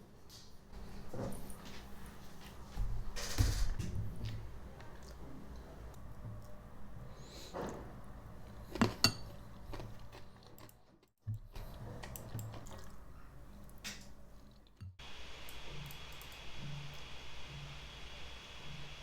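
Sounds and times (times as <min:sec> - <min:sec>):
dishes and utensils clinking: 0:08.8 - 0:09.4.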